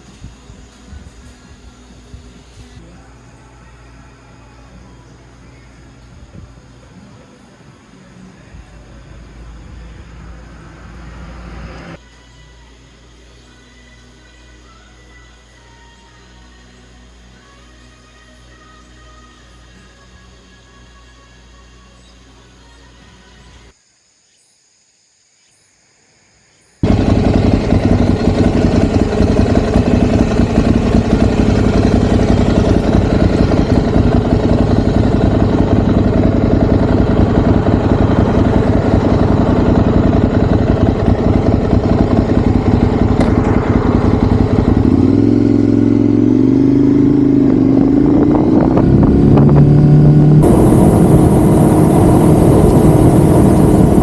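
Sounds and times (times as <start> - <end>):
motorcycle engine running loudly: 4.5 - 12.0, 26.8 - 54.0
road and wind noise: 6.0 - 12.0, 26.8 - 54.0.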